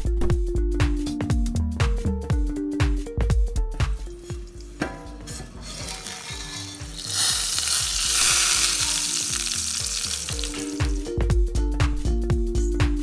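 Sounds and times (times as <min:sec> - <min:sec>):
chillies sizzling in oil: 0:04.0 - 0:11.1.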